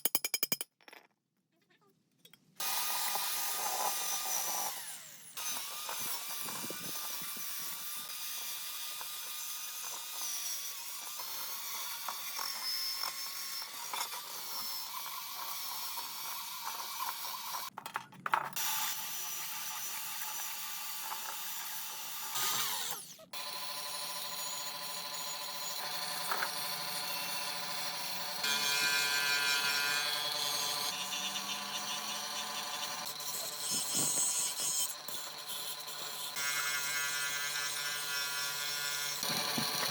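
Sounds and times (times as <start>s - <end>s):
power tools running: 22.3s - 39.9s.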